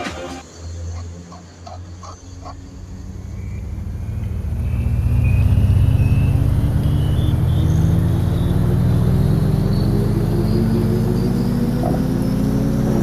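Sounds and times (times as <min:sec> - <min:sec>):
high whine: 0:00.0 - 0:13.0
motor vehicle engine accelerating: 0:00.5 - 0:13.0.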